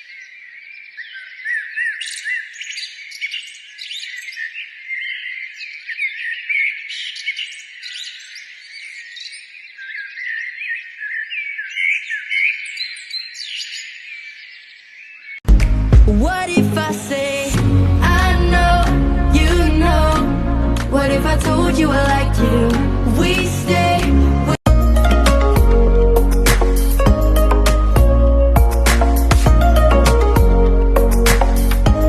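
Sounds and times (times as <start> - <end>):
birds chirping and singing: 0.0 - 15.4.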